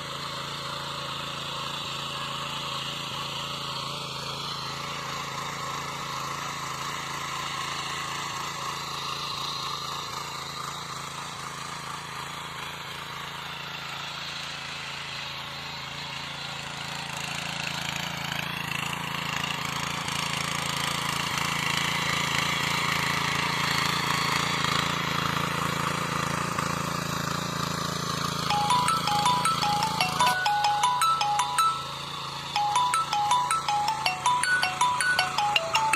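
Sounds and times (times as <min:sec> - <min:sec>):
tiller engine running: 0:00.0 - 0:10.2.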